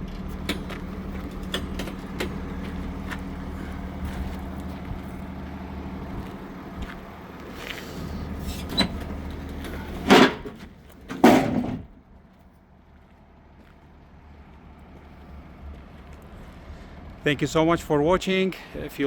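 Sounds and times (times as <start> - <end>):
liftgate motor hum: 0.0 - 12.0
loud metal bangs: 9.8 - 12.0.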